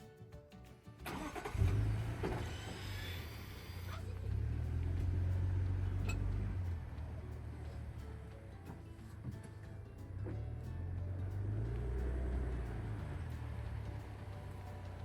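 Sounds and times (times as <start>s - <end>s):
engine starting: 1.0s - 4.1s
engine low rumble: 1.1s - 15.0s.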